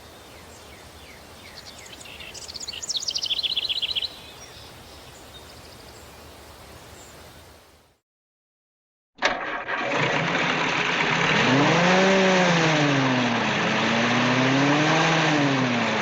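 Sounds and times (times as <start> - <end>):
bird singing rapid trill: 0.0 - 7.4
birds calling: 0.0 - 7.6
steady breeze: 0.0 - 7.9.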